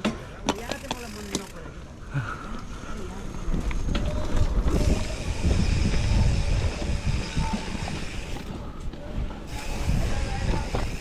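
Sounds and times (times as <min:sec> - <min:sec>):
bike tyres and frame rattling: 0:00.0 - 0:11.0
wind on microphone: 0:03.2 - 0:11.0.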